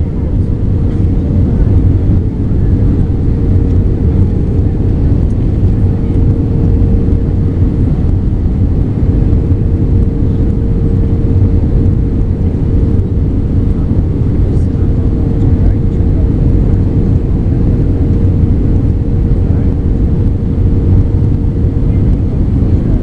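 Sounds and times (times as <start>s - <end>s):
aircraft cabin engine rumble: 0.0s - 23.0s
steady tone: 0.0s - 23.0s.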